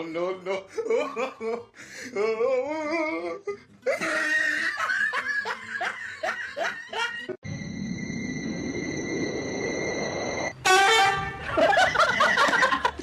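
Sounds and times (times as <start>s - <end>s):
person laughing heartily: 0.6s - 7.4s, 11.2s - 13.0s
high whine: 7.4s - 12.8s
low rumbling noise: 7.5s - 12.2s.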